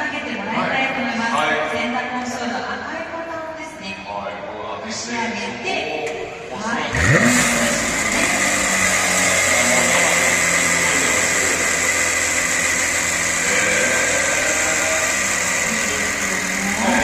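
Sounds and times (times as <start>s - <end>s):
car engine idling: 6.8s - 17.0s.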